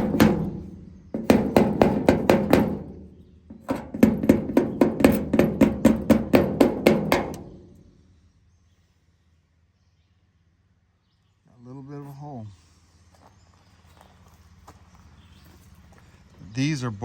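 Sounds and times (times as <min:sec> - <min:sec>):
hammer tapping on metal: 0:00.0 - 0:07.8.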